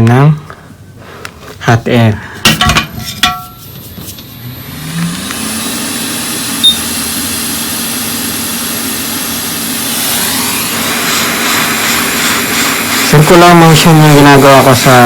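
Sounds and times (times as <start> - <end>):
hot air fan humming: 0.0 - 15.0
short high beep: 6.6 - 7.0.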